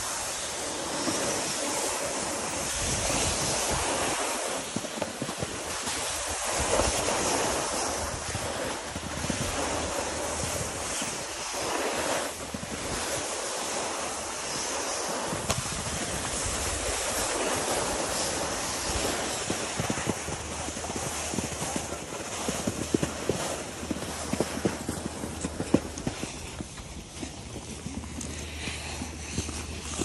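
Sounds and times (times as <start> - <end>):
snowboard scraping over snow: 0.0 - 30.0
wind rumbling on microphone: 0.0 - 30.0.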